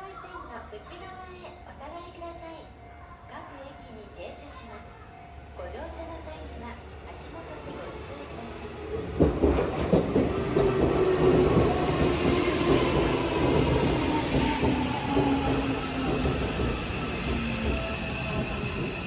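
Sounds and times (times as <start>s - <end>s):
train rumbling on rails: 4.9s - 19.0s
train knocks: 8.9s - 19.0s.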